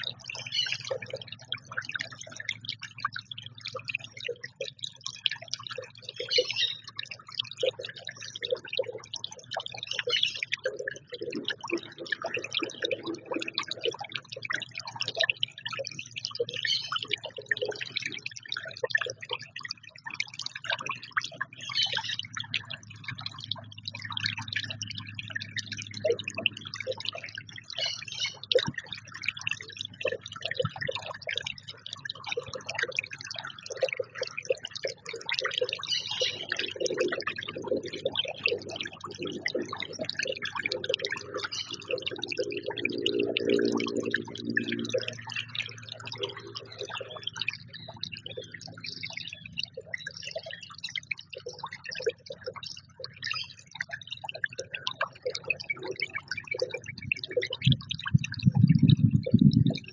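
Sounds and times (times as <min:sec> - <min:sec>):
small birds chirping: 0:00.0 - 0:01.8, 0:06.0 - 0:13.9, 0:15.9 - 0:18.4, 0:21.0 - 0:23.3, 0:23.9 - 0:29.2, 0:33.5 - 0:42.5
low steady hum: 0:57.7 - 0:59.9.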